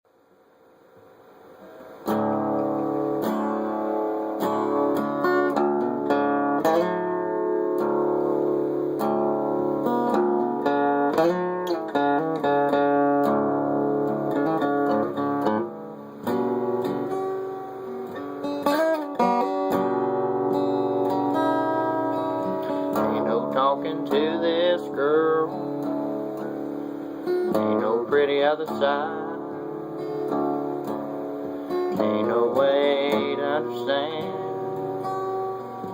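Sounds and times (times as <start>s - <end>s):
acoustic guitar playing: 0.3s - 35.9s.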